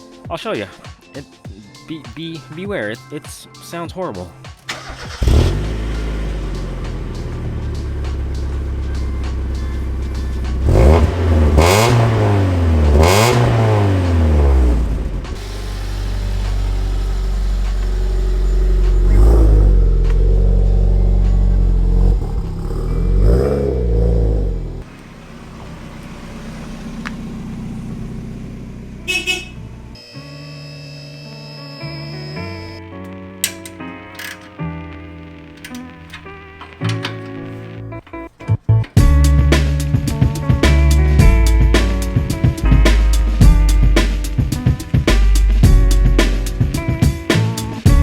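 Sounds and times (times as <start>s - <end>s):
music: 0.0s - 23.6s, 30.0s - 48.0s
car engine idling and revving: 4.7s - 31.2s, 38.8s - 48.0s.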